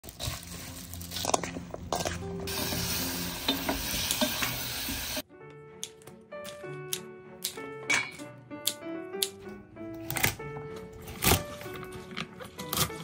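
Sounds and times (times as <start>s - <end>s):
light background music: 0.0s - 13.0s
food sizzling in a frying pan: 2.5s - 5.2s.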